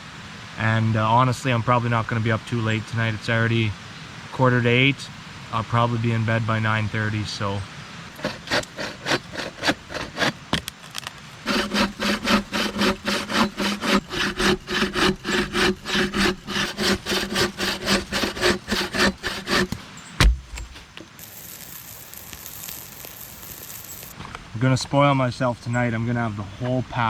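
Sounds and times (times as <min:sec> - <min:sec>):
hand saw cutting wood: 0:08.1 - 0:23.9
thump: 0:20.2 - 0:20.9.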